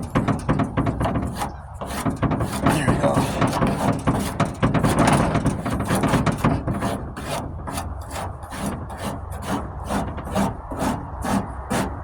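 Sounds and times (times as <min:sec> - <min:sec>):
rasp shaving body filler: 0:01.9 - 0:05.0.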